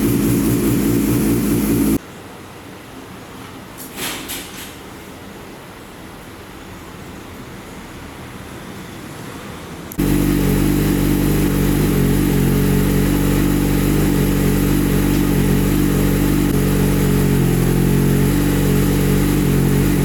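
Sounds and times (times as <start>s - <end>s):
motorcycle engine idling: 0.0s - 2.0s, 10.0s - 20.0s.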